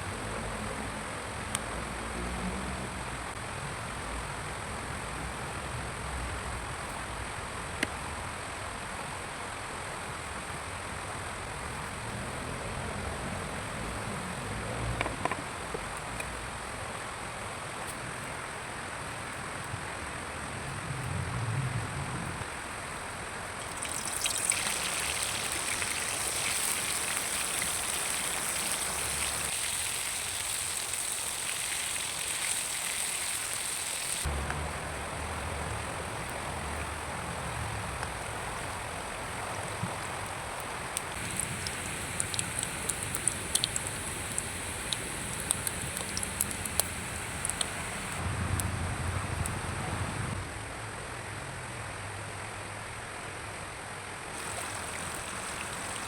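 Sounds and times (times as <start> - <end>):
rain hissing: 23.5 - 48.2, 54.4 - 56.0.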